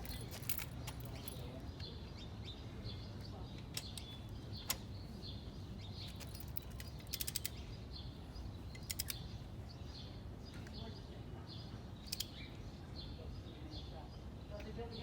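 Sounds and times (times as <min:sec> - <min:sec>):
metallic ratchet clicks: 0:06.1 - 0:07.6, 0:08.8 - 0:09.2
sharp clicks: 0:06.1 - 0:07.6, 0:08.7 - 0:09.3, 0:12.0 - 0:12.4.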